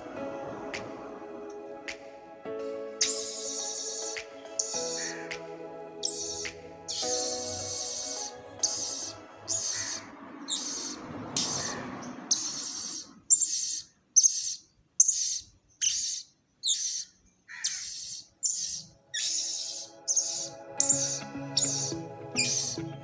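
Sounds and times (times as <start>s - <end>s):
faint background music: 0.0s - 11.8s, 18.4s - 23.0s
bird calling in high bursts: 3.0s - 5.3s, 6.0s - 22.9s.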